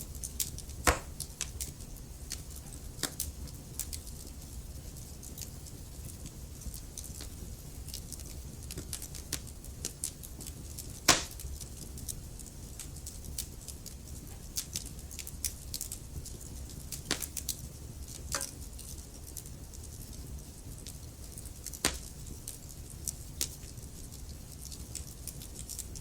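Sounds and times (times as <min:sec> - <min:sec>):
wood logs crackling in fireplace: 0:00.0 - 0:26.0
loud pop from fire: 0:00.8 - 0:01.2, 0:11.1 - 0:11.4, 0:21.8 - 0:22.1.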